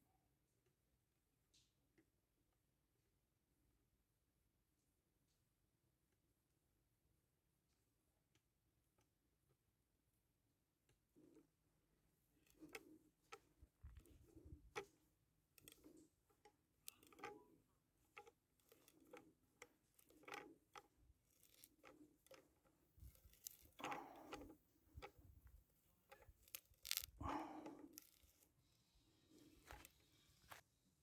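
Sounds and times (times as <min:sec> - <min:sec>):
faint clicks and light knocks: 0:12.4 - 0:30.6.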